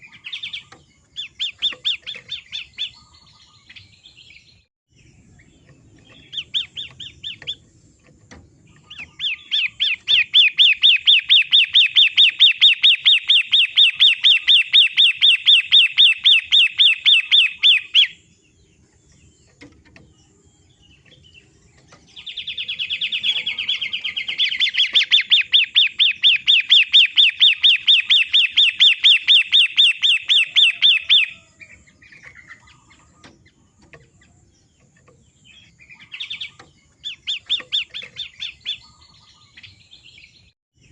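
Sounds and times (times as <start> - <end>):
bird repeating sharp notes: 8.7 - 18.2, 22.2 - 31.5
harsh buzzy bird call: 22.3 - 33.1.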